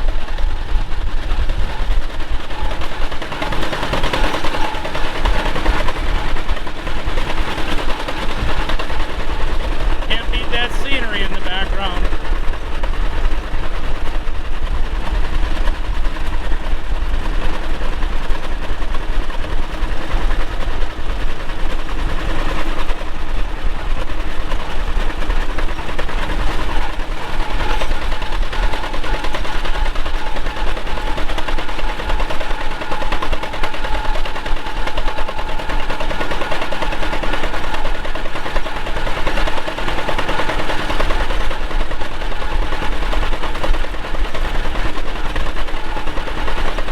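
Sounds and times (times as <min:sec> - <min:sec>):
tractor engine popping exhaust: 0:01.5 - 0:13.0.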